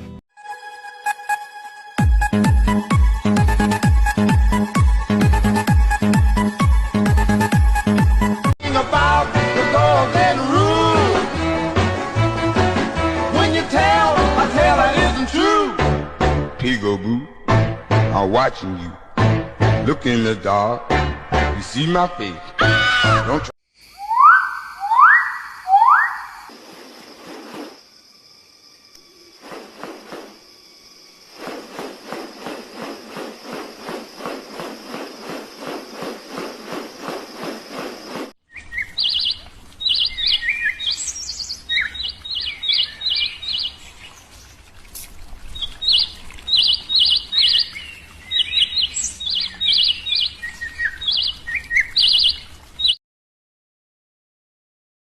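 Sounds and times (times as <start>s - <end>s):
birds chirping: 23.8s - 27.1s, 31.4s - 53.0s.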